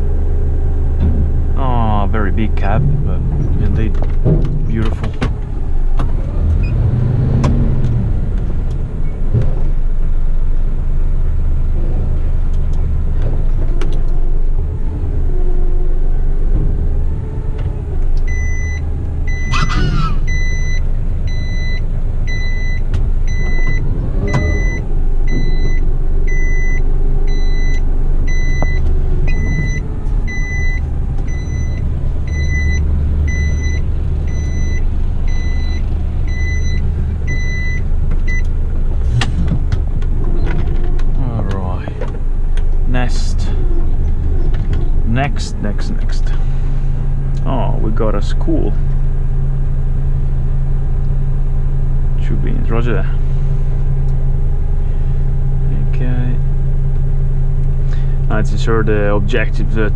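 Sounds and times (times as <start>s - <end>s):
truck diesel engine running: 0.0s - 59.9s
repeating electronic beep: 18.3s - 38.4s.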